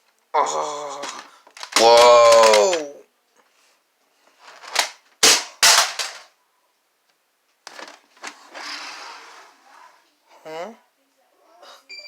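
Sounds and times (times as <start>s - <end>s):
toy gun bangs: 1.7s - 2.8s, 4.8s - 6.3s.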